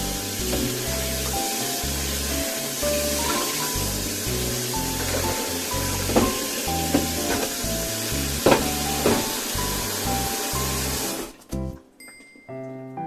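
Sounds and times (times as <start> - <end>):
tap water running into sink: 0.0 - 11.8
soft background music: 0.0 - 13.0
dishes clinking and knocking: 5.0 - 7.7, 8.4 - 9.6.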